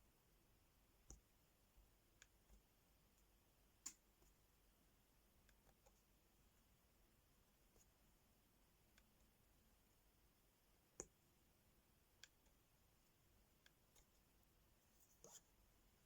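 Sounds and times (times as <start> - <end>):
small plastic clicks and taps: 12.2 - 12.6.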